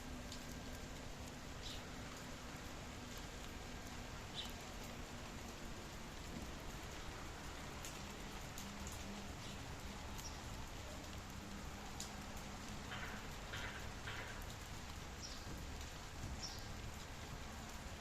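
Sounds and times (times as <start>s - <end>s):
rain pattering: 0.0s - 18.0s.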